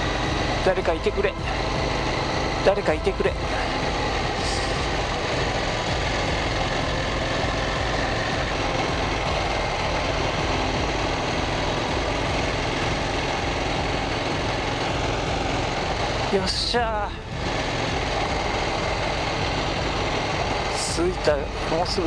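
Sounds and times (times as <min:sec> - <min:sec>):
motorcycle engine running: 0:00.0 - 0:22.0
wind and road noise: 0:00.0 - 0:22.0.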